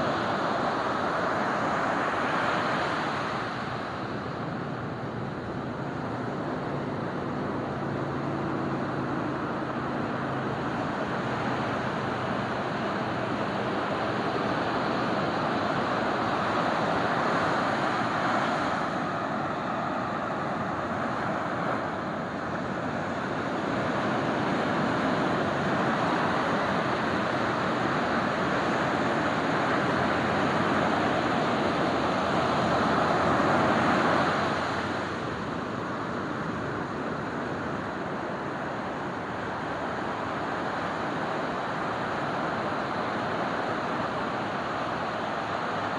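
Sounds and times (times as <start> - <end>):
ocean surf breaking: 0.0 - 45.9.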